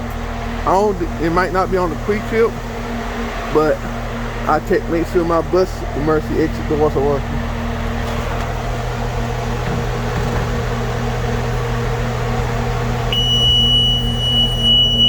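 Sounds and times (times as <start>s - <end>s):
bus engine idling: 0.0s - 15.0s
high-pitched door alarm tone: 13.1s - 15.0s.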